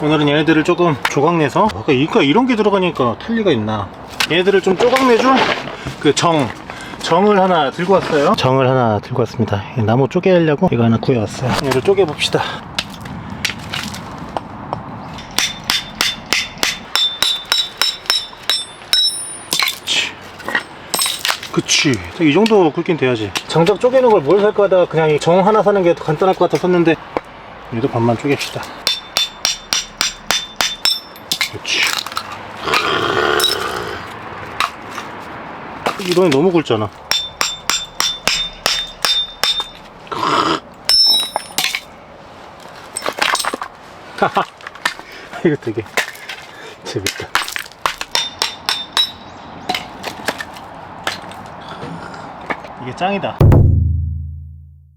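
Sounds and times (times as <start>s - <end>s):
hammer striking steel chisel: 15.2s - 19.9s, 28.8s - 31.6s, 37.1s - 39.9s, 40.9s - 41.8s, 47.9s - 49.9s.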